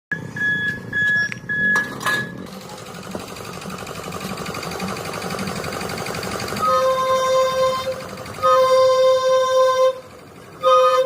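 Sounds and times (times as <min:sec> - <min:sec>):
rhythmic clatter: 0:02.2 - 0:11.0.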